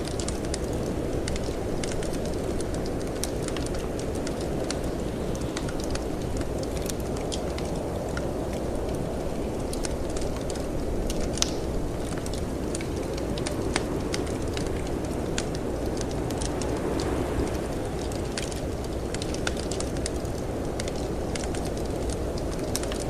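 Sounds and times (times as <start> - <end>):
storm wind rumble: 0.0 - 23.0
wood fire crackling and popping: 0.0 - 23.0.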